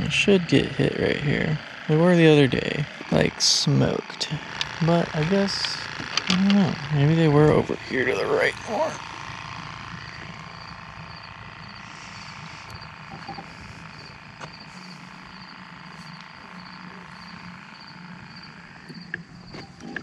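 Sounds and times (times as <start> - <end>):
constant low hum: 0.0 - 20.0
crickets chirping: 10.0 - 20.0.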